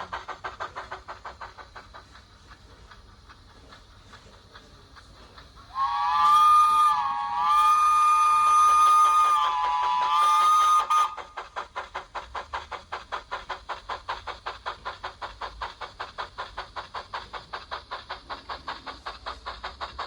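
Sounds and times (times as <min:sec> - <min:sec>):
steam exhaust chuffs: 0:00.0 - 0:20.0
steam locomotive whistle: 0:05.7 - 0:11.4.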